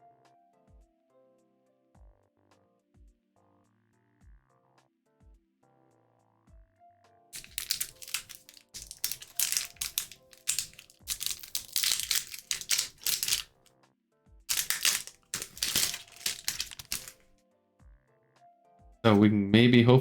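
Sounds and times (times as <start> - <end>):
foil wrappers crinkling: 7.4 - 13.6, 14.5 - 17.3
faint background music: 14.5 - 20.0.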